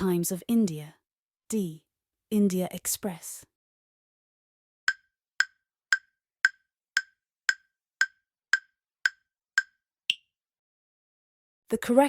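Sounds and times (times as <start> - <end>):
timer ticks: 4.9 - 10.3.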